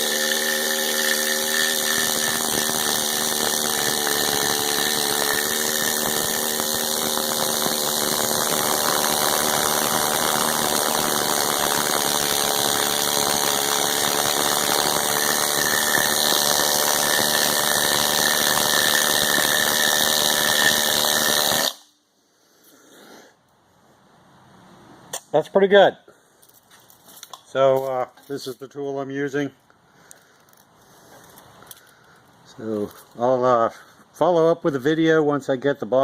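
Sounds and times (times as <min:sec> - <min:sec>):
power tool stripping paint: 0:00.0 - 0:21.8.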